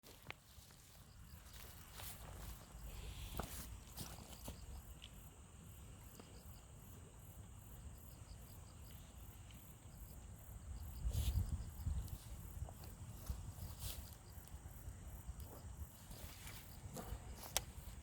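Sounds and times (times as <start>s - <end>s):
insects chirping: 0.1s - 18.0s.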